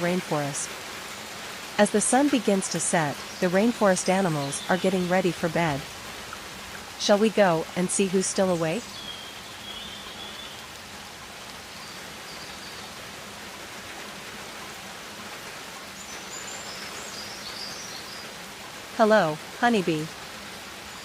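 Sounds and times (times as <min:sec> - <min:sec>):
rain-like hiss: 0:00.0 - 0:21.0.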